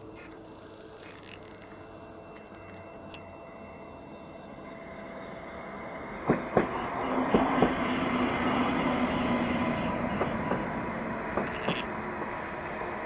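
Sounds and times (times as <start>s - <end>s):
train rolling roar: 0.0s - 13.0s
wheels clicking on track: 4.6s - 13.0s.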